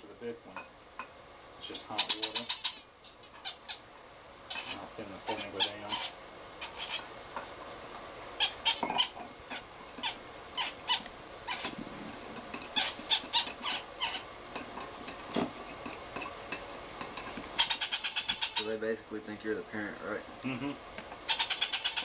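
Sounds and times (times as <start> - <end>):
parrot chicks begging squeaks: 1.9 - 3.9, 4.5 - 7.1, 8.4 - 11.8, 12.6 - 14.4, 17.5 - 18.8, 21.2 - 22.0.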